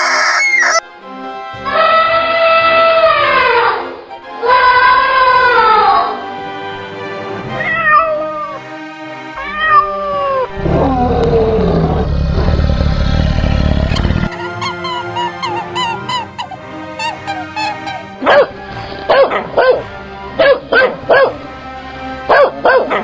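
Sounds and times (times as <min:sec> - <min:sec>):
background music: 0:00.0 - 0:23.0
cat meowing: 0:07.5 - 0:08.6, 0:09.4 - 0:11.8
low rasping growl: 0:10.4 - 0:14.3, 0:18.5 - 0:20.2.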